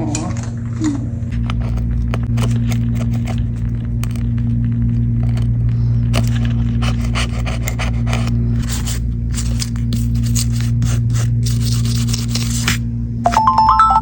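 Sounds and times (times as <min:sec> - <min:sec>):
steady low hum: 0:00.0 - 0:14.0
small tools scraping and clicking: 0:01.3 - 0:10.6.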